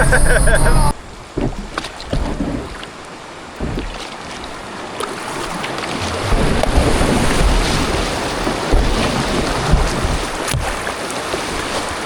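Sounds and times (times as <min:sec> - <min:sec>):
wind buffeting microphone: 0:06.0 - 0:10.9.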